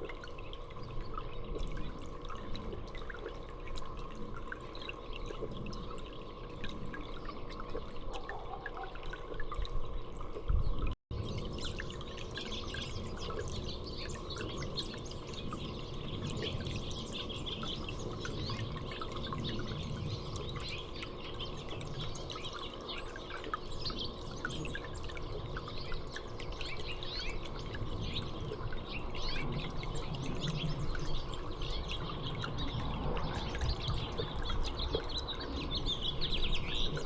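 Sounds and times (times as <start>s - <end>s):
water dripping and trickling: 0.0s - 37.0s
small songbirds chirping: 11.2s - 37.0s.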